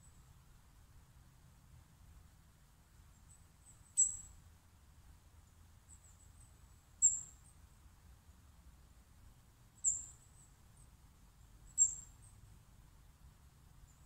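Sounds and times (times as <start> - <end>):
faint low outdoor rumble: 0.0 - 14.0
small bird chirping: 3.1 - 4.4, 5.4 - 7.8, 9.7 - 12.5, 13.7 - 14.0.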